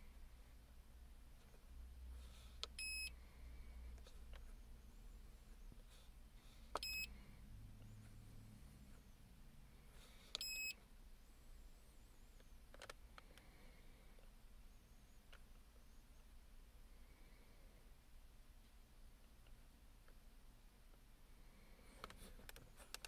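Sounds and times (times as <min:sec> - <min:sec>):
short high beeps: 0:02.8 - 0:03.1, 0:06.8 - 0:07.1, 0:10.4 - 0:10.8.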